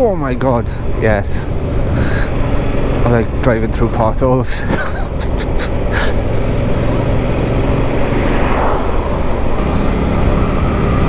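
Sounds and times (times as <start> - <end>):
motorcycle engine running: 0.2 - 8.2, 9.6 - 11.0
wind on microphone: 7.7 - 9.7.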